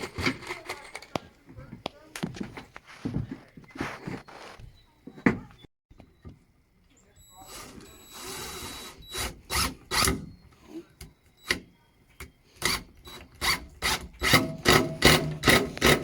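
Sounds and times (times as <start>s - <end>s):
handsaw cutting wood: 13.4s - 16.0s.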